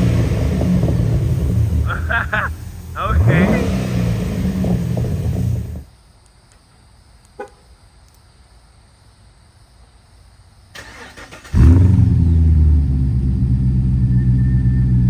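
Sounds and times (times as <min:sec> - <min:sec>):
starter cranking: 0:00.0 - 0:05.8
car engine idling loudly: 0:00.0 - 0:05.9.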